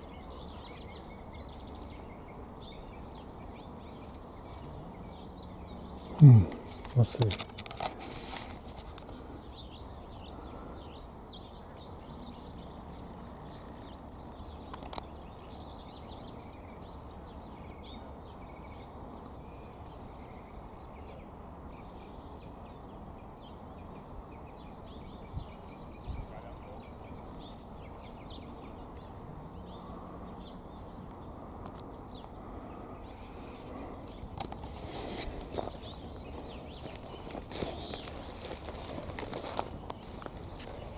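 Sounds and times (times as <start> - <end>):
low background noise: 0.0 - 40.9
small bird chirping: 21.1 - 40.9.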